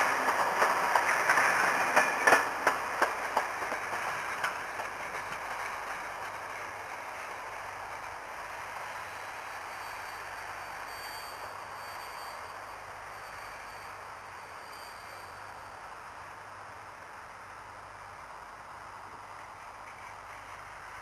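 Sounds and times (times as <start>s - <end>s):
train wheels clicking over rail joints: 0.0s - 8.9s
train rumble: 0.0s - 21.0s.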